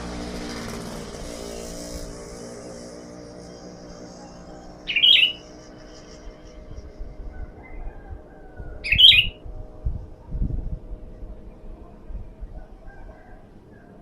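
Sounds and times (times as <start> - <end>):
bird calls: 4.2 - 5.6, 7.6 - 9.4.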